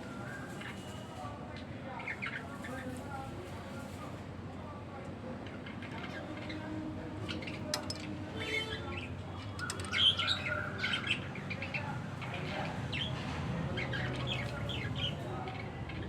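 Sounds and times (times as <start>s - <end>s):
small pet birds chirping: 9.4s - 13.1s.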